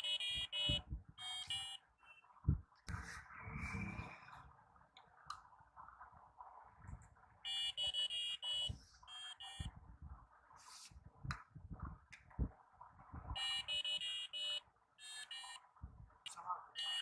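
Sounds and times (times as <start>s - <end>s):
harsh square-wave beeps: 0.0s - 2.6s, 7.4s - 9.9s, 13.3s - 15.7s, 16.8s - 17.0s.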